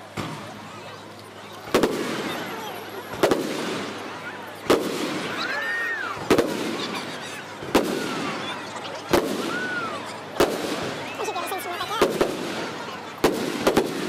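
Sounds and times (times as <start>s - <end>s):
firework shells bursting: 3.1s - 5.4s.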